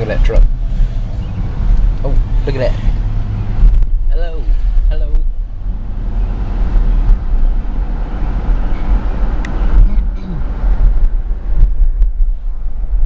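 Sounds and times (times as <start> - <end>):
car cabin rumble: 0.0 - 13.0
road and wind noise: 0.0 - 13.0.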